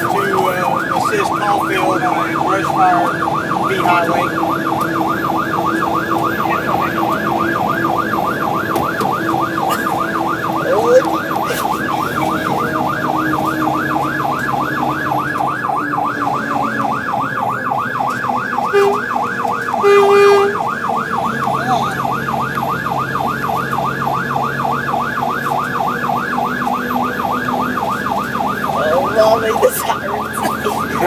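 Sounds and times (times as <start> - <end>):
fire truck siren yelping: 0.0 - 31.0
truck engine: 0.0 - 31.0
truck horn blast: 18.6 - 19.2, 19.8 - 20.7.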